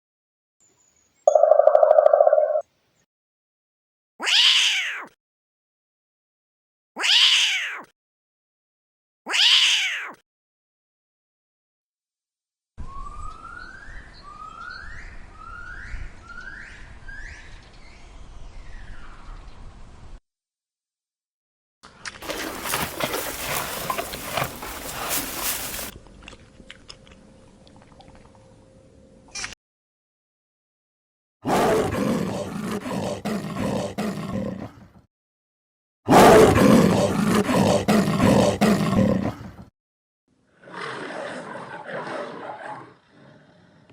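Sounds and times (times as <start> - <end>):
animal roaring: 22.2 - 25.9, 31.5 - 34.8, 36.1 - 39.5, 40.6 - 43.9.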